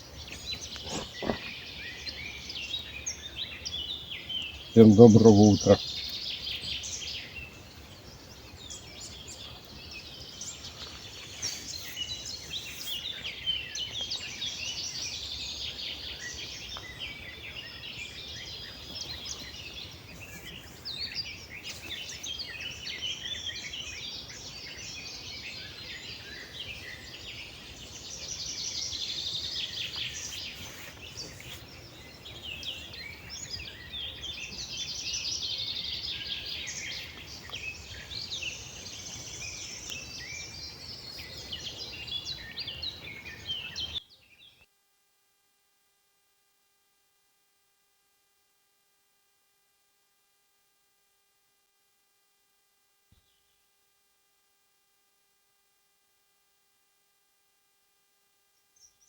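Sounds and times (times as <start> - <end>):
songbirds chorus chirping and trilling: 0.0 - 44.6.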